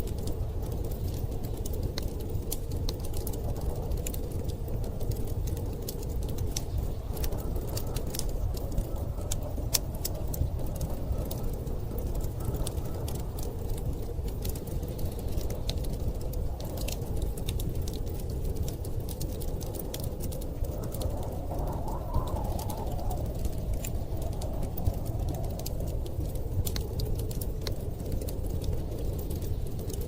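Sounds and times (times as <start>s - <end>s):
storm wind rumbling: 0.0s - 30.0s
wood fire crackling and popping: 0.0s - 30.0s.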